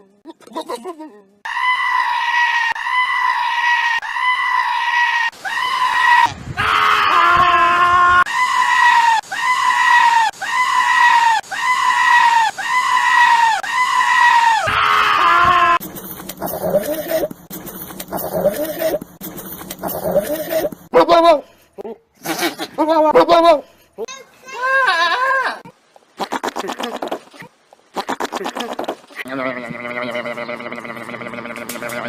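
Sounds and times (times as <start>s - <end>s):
goat screaming: 1.4s - 15.8s, 24.6s - 25.6s.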